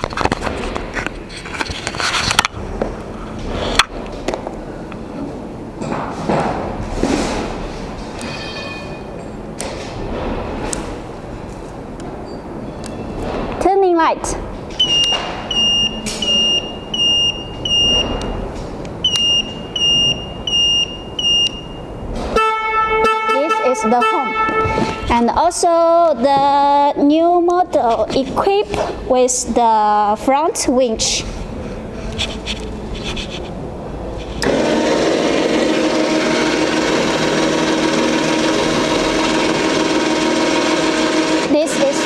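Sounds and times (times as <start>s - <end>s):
clicks: 18.0s - 19.6s
turn-signal buzzer beeping: 19.1s - 21.9s
electric winch motor running: 34.4s - 42.0s.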